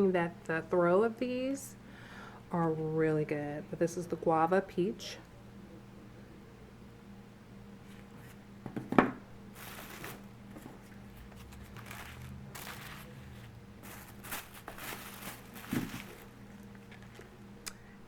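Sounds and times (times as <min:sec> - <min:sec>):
packaging crinkling and rustling: 0:09.6 - 0:17.4.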